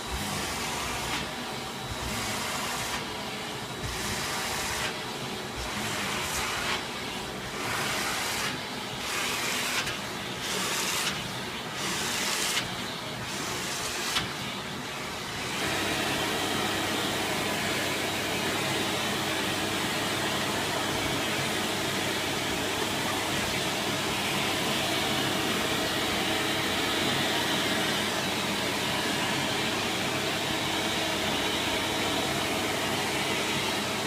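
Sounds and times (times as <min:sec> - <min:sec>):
vacuum cleaner whirring: 0:00.0 - 0:34.0.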